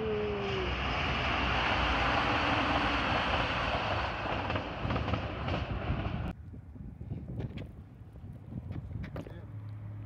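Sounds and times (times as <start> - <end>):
diesel train passing: 0.0 - 6.4.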